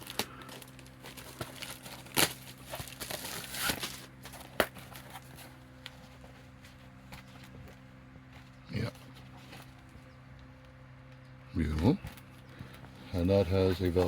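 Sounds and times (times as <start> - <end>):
packaging crinkling: 0.0 - 5.9
steady low hum: 0.0 - 14.0.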